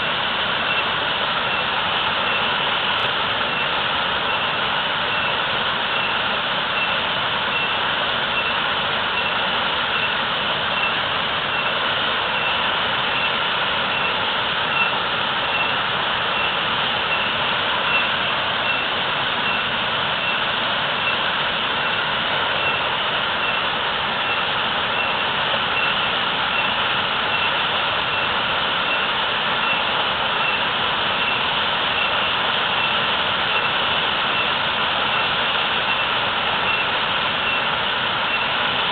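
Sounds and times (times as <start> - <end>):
waterfall pouring: 0.0 - 38.9
faint high-pitched repeating tone: 12.4 - 20.4.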